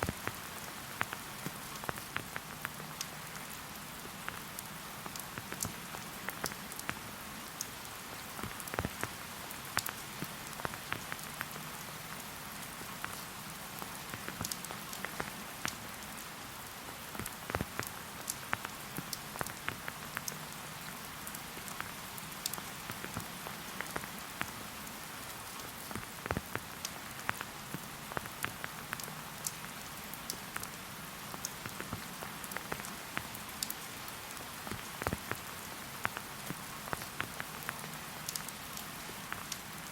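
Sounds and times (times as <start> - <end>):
light rain pattering: 0.0 - 39.9.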